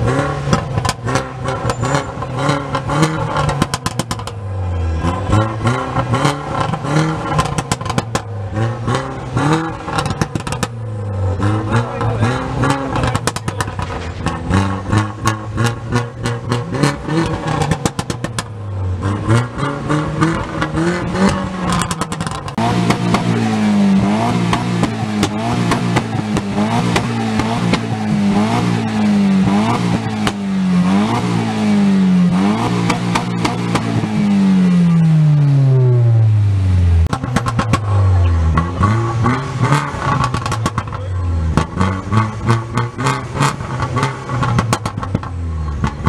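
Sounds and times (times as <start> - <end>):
car engine revving: 0.0 - 46.0
engine crackling pops: 0.5 - 4.4, 6.6 - 8.3, 12.6 - 16.6, 17.2 - 18.5, 20.3 - 23.4, 24.4 - 27.9, 32.6 - 34.1, 37.0 - 46.0.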